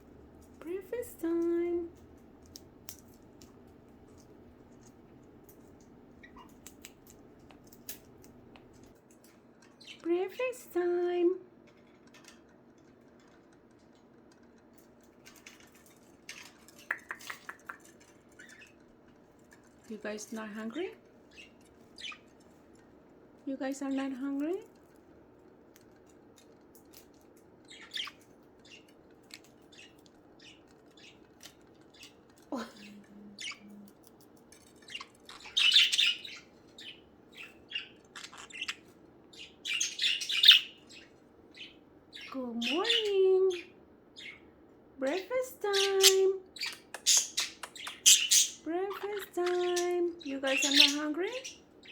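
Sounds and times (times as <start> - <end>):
budgies chirping: 0.0 - 8.9, 16.2 - 22.5, 25.9 - 44.5, 45.1 - 51.9
budgies chattering: 0.2 - 8.9, 16.4 - 18.8, 19.9 - 22.4, 26.9 - 44.5, 45.1 - 51.9.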